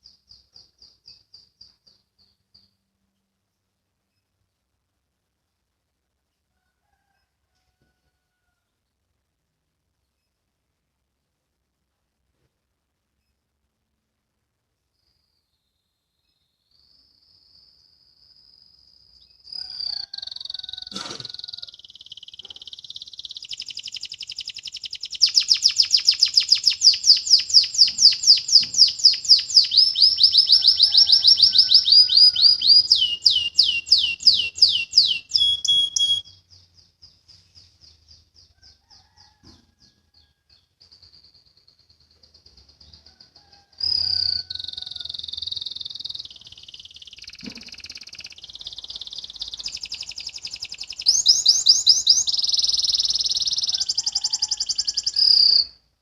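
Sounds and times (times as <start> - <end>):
canary singing trills: 16.5 - 39.2, 40.2 - 55.8.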